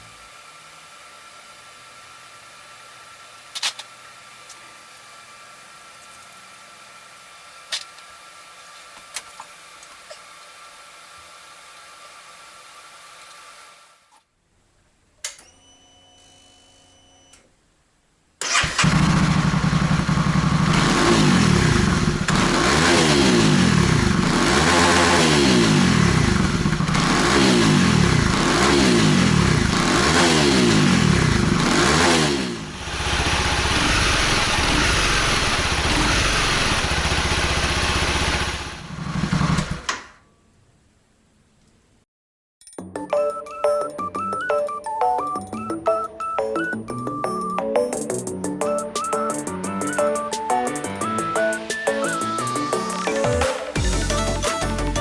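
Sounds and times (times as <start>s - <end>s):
motorcycle engine revving and idling: 18.8s - 39.9s.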